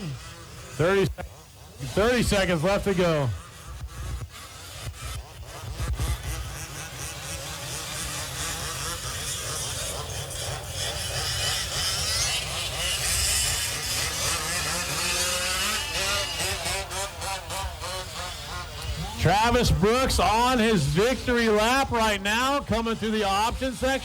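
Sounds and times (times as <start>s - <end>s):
rc truck engines revving: 0.0s - 24.0s.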